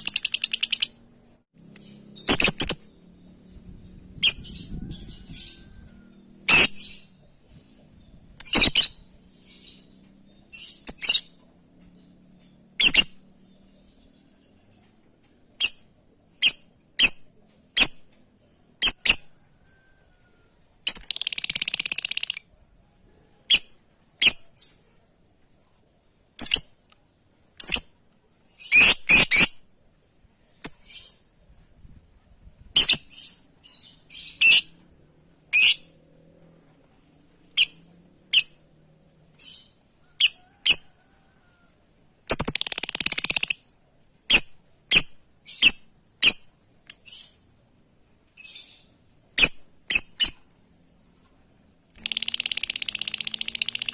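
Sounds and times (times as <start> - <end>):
lovebird chirping: 0.0 - 11.4, 20.9 - 22.6, 26.3 - 26.9, 32.6 - 34.8, 35.5 - 36.0, 37.3 - 38.6, 42.3 - 43.7, 44.3 - 47.5, 48.4 - 50.5, 51.8 - 53.9.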